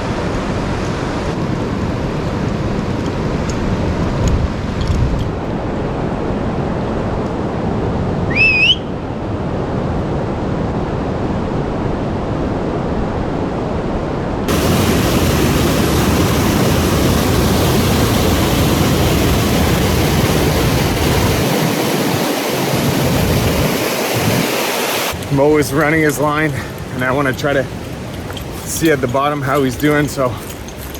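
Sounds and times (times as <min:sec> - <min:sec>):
short rising whistle: 0:08.3 - 0:09.0
river water rushing: 0:14.5 - 0:30.9.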